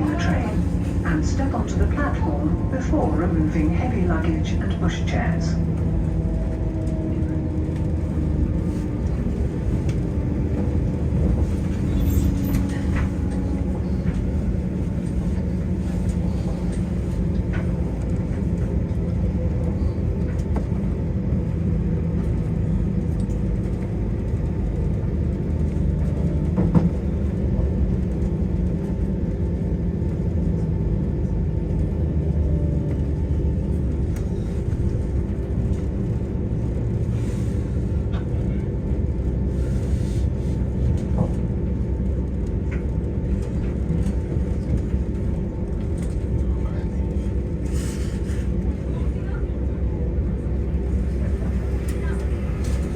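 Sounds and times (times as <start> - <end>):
train diesel engine rumble: 0.0 - 52.9.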